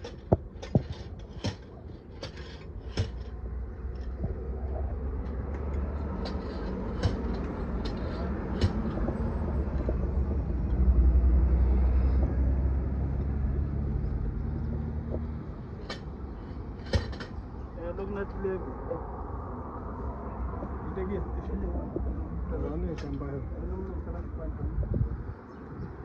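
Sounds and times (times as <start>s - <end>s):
sharp clicks and knocks: 0.0s - 10.9s, 14.2s - 17.5s
passing vehicle rumble: 1.8s - 26.0s.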